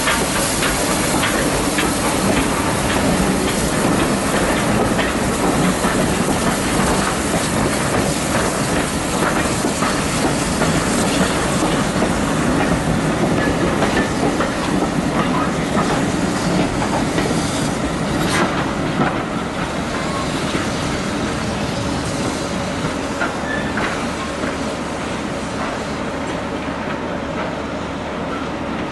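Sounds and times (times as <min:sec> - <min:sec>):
train wheels clicking over rail joints: 0:00.0 - 0:27.7
wheel squeals: 0:23.4 - 0:23.9.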